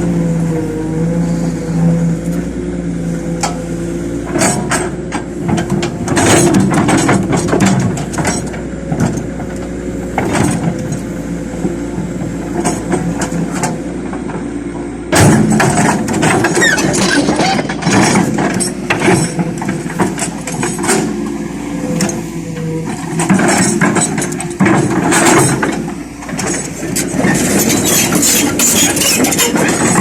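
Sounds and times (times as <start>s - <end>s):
excavator engine running: 0.0s - 30.0s
metallic clanks and knocks: 15.1s - 21.3s, 21.9s - 30.0s.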